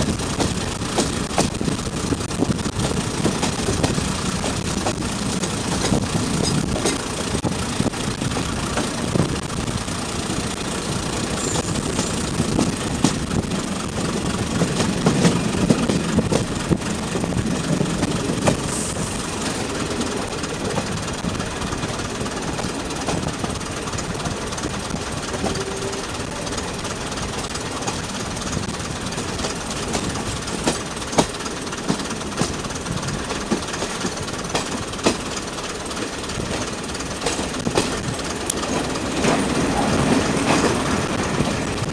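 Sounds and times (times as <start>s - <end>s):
train engine drone: 0.0s - 41.9s
wheels clicking over rails: 0.0s - 41.9s.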